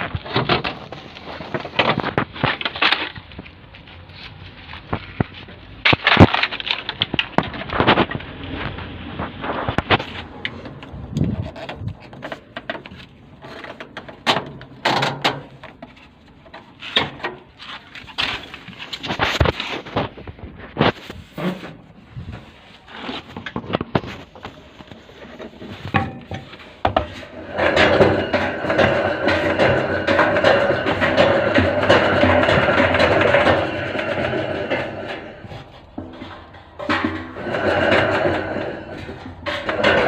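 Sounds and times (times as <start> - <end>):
washing machine door clicks and clatter: 14.2 - 15.6.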